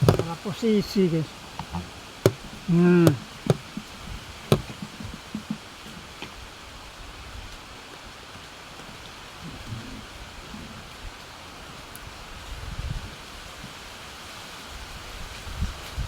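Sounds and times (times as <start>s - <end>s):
sharp knocks: 0.0s - 0.4s, 3.1s - 3.9s, 4.5s - 5.6s.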